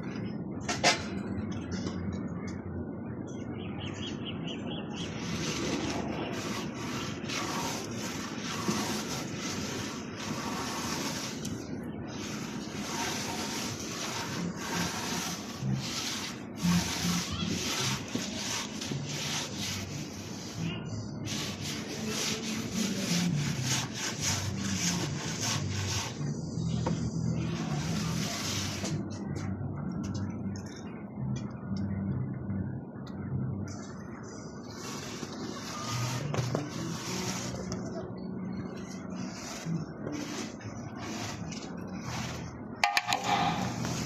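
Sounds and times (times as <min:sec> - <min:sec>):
hand tool rasping on wood: 0:12.2 - 0:20.3, 0:21.3 - 0:26.2.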